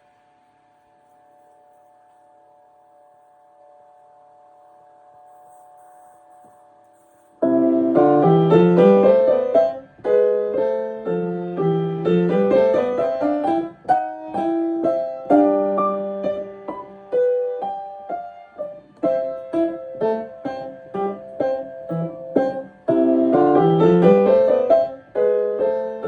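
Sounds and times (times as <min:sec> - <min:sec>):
piano playing: 0:07.4 - 0:26.0.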